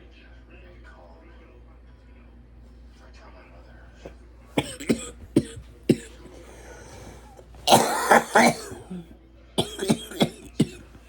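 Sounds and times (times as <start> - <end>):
person coughing: 4.6 - 11.0.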